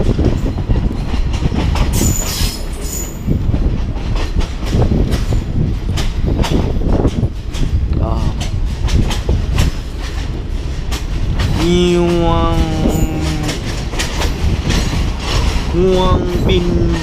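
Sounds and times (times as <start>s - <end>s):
train rumble with wheels knocking: 0.0s - 17.0s
high wheel squeal: 2.0s - 3.3s.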